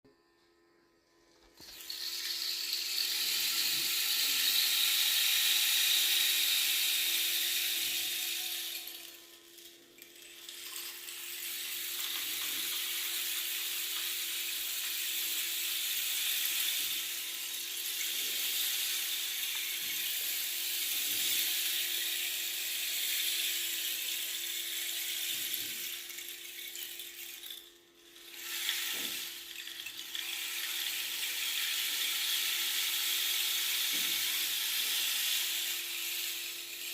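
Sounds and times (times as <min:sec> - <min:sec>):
rain stick pellets trickling: 0:01.5 - 0:36.9.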